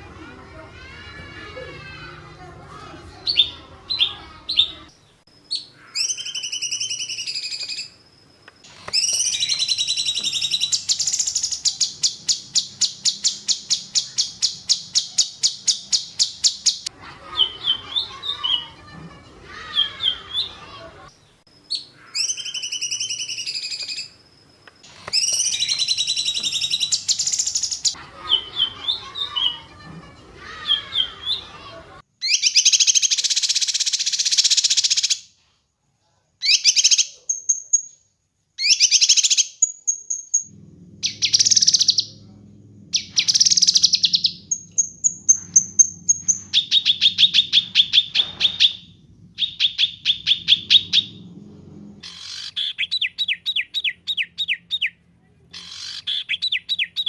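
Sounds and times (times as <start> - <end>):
songbird singing trills: 3.1 - 8.0, 8.9 - 20.7, 25.1 - 34.8
low steady hum: 40.5 - 52.2.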